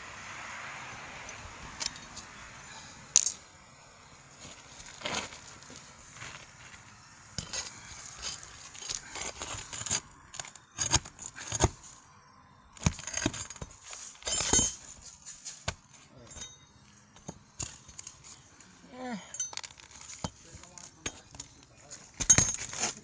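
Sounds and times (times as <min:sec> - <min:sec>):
shingles crackling: 0:00.0 - 0:23.0
hand tools knocking on shingles: 0:07.4 - 0:11.8, 0:12.8 - 0:18.3, 0:19.5 - 0:23.0.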